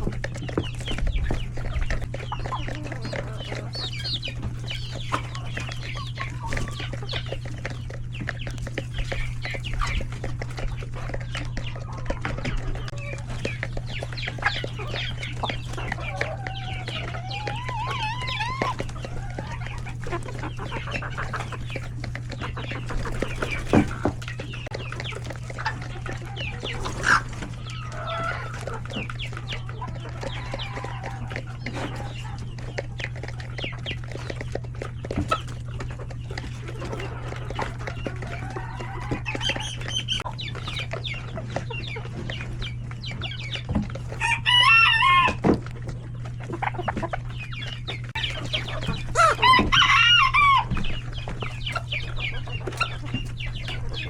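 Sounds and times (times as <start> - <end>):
chickens clucking: 0.0 - 54.0
chicks peeping: 0.0 - 54.0
steady low hum: 0.0 - 54.0
rooster crowing: 44.2 - 45.4, 49.2 - 50.8.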